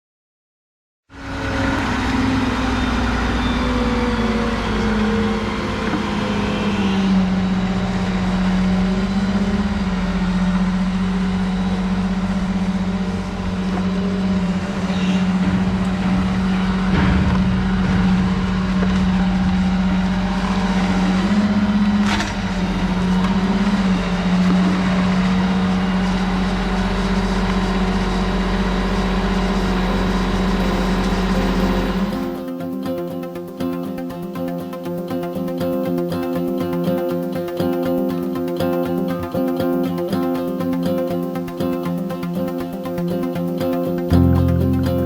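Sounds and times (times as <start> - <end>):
engine running at high speed: 1.1 - 32.6.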